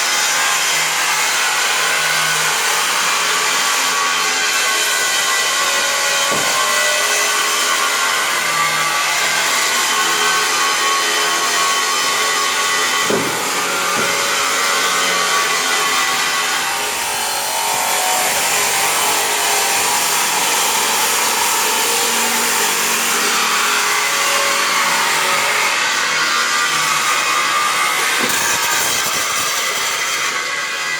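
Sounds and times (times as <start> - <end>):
steady machine noise with hiss: 0.0 - 30.9.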